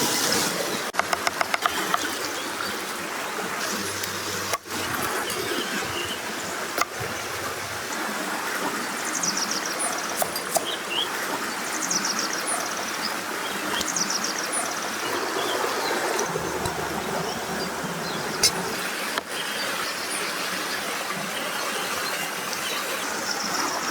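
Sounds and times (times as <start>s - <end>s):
stream water flowing: 0.0s - 23.9s
small birds chirping: 9.0s - 20.3s.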